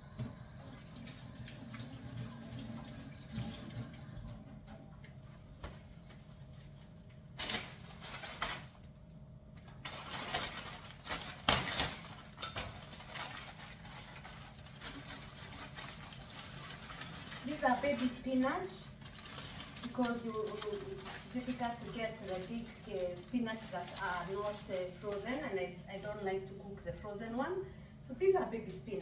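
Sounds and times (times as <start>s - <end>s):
tap running into a sink: 0.1s - 4.8s
steady low hum: 22.1s - 29.0s.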